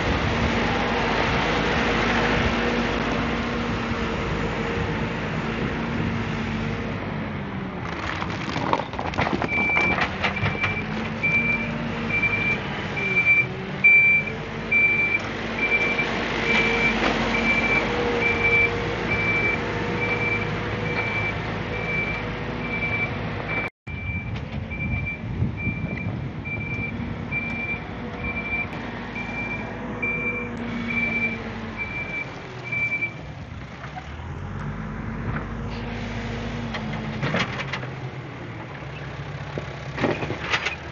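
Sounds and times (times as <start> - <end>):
heavy diesel engine working: 0.0 - 7.8, 9.4 - 40.9
reversing alarm beeping: 9.5 - 33.2.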